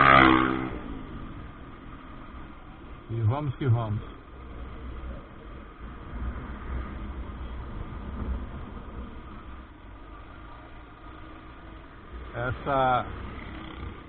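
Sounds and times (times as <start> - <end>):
motorcycle engine and road rumble: 0.0 - 14.0.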